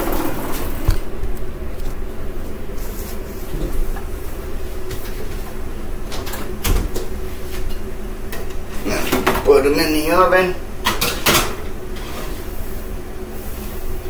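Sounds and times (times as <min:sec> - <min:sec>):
steady low hum: 0:00.0 - 0:14.0
kitchen knocks and clatters: 0:10.8 - 0:11.7.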